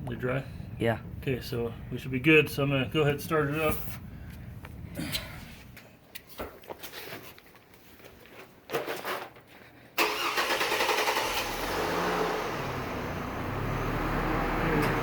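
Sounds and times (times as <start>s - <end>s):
car engine starting and idling: 10.0s - 15.0s.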